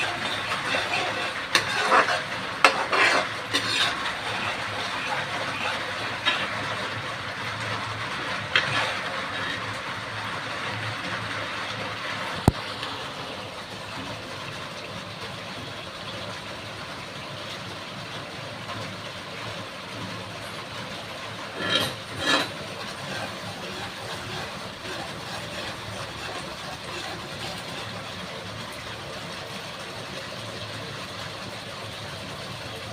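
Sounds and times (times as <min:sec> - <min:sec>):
food sizzling in a pan: 0:00.0 - 0:12.9, 0:21.2 - 0:28.0.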